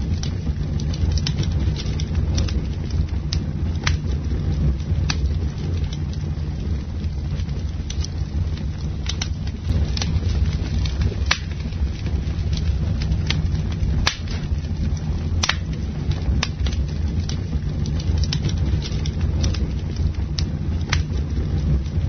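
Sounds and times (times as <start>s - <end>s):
low fire rumble: 0.0s - 22.0s
wood crackling and popping: 0.0s - 22.0s.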